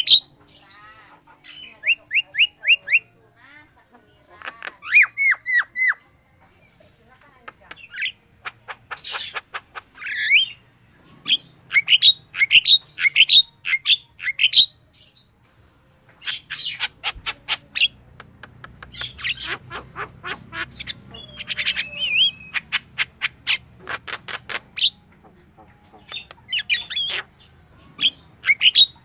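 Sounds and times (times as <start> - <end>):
bird chirping: 7.5 - 15.4, 16.2 - 29.0
bird sharp clicking notes: 18.1 - 19.4.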